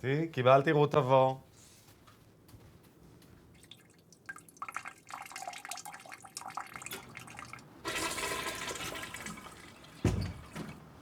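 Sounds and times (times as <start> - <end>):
person urinating into toilet: 3.6 - 10.8.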